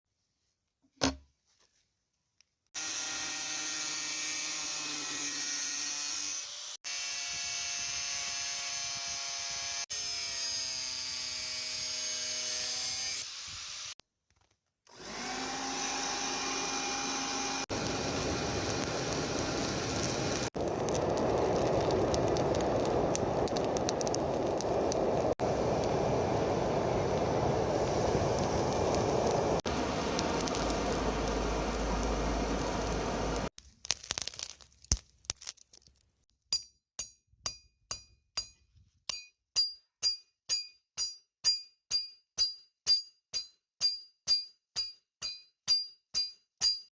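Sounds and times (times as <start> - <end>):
power tool motor humming: 14.9 - 20.6.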